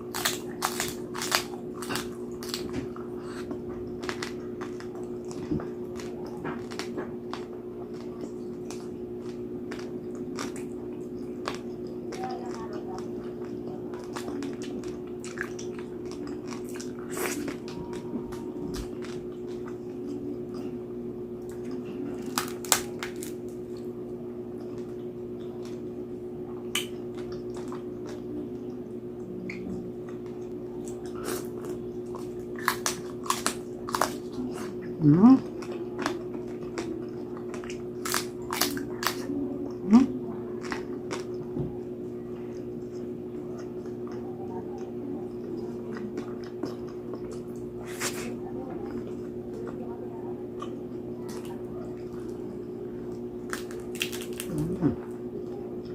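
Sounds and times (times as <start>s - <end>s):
chewing crunchy pig skin: 0.0s - 55.9s
low hum: 0.0s - 55.9s.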